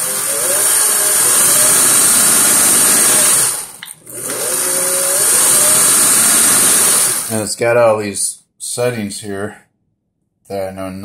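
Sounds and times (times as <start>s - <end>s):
sewing machine motor whining: 0.0s - 7.4s.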